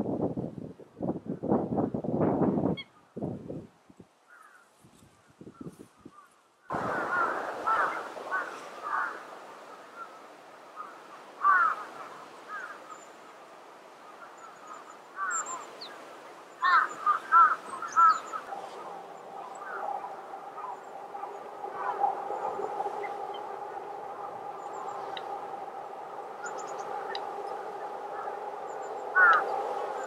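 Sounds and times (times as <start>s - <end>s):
birds calling: 6.1s - 13.3s, 13.9s - 30.0s.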